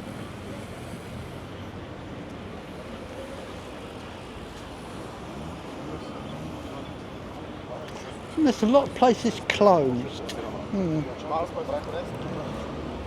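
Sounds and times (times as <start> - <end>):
distant traffic hum: 0.0 - 13.0.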